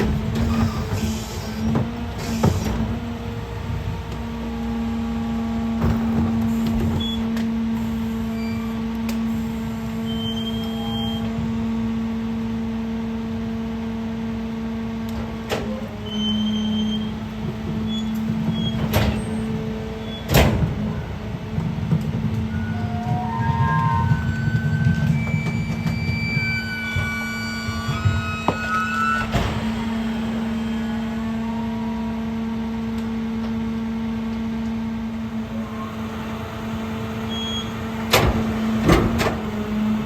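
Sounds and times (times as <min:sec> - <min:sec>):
garbage truck hydraulic and engine hum: 0:00.0 - 0:40.0.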